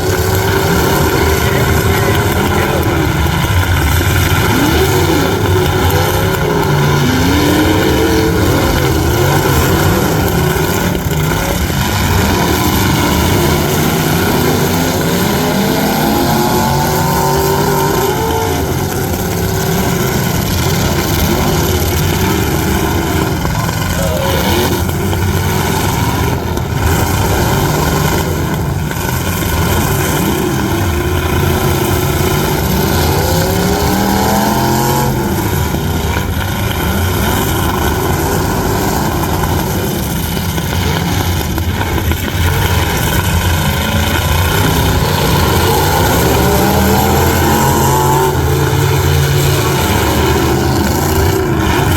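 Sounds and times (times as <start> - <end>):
truck engines revving: 0.0 - 51.9.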